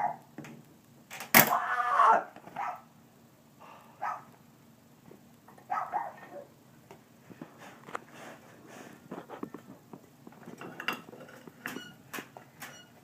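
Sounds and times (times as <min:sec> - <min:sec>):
dog barking: 0:00.0 - 0:00.2, 0:02.5 - 0:02.9, 0:04.0 - 0:04.3, 0:05.7 - 0:06.5.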